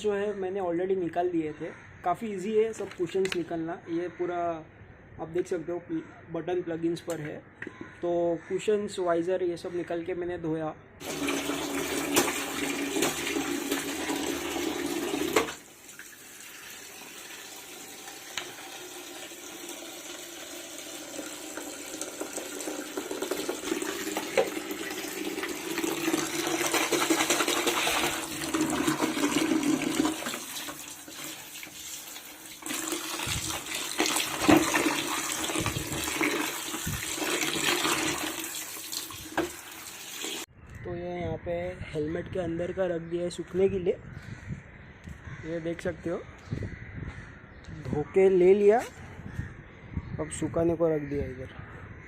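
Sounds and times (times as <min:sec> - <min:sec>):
tap water running and splashing: 0:11.0 - 0:40.5.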